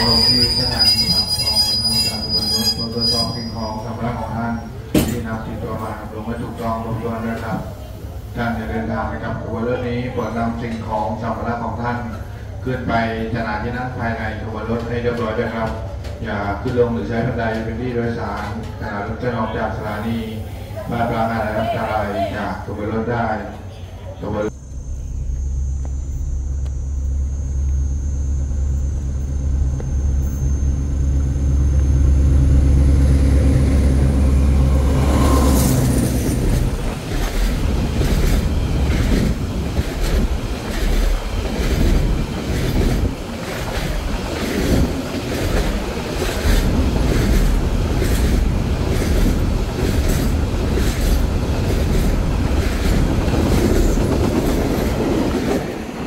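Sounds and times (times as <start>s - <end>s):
diesel locomotive engine drone: 0.0s - 56.0s
wheels clacking over rail joints: 34.5s - 56.0s.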